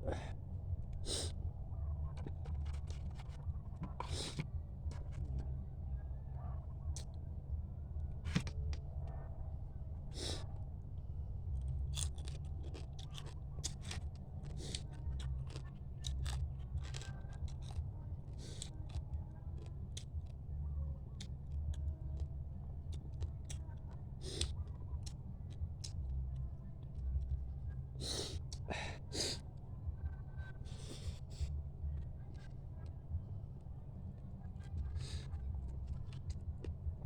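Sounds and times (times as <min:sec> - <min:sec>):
steady low hum: 0:00.0 - 0:37.0
chewing: 0:11.6 - 0:20.3
crab shell cracking and crunching: 0:11.9 - 0:17.8.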